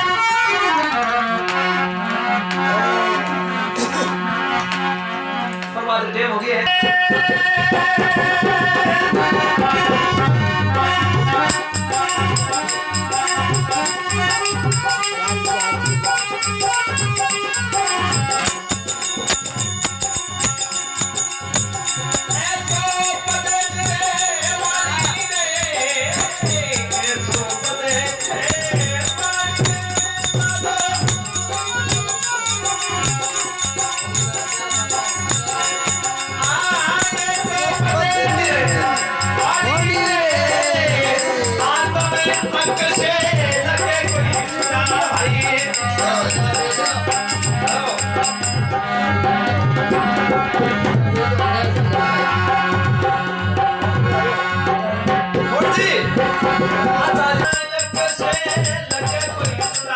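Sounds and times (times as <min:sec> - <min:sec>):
rattling percussion: 0:06.7 - 0:59.9
drum strokes: 0:11.2 - 0:48.8.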